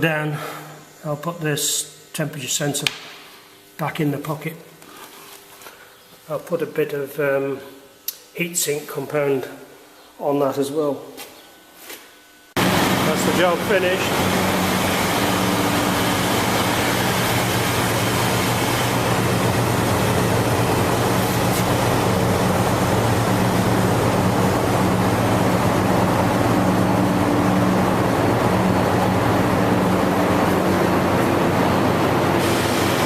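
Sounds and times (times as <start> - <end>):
machinery low hum: 12.4 - 33.0.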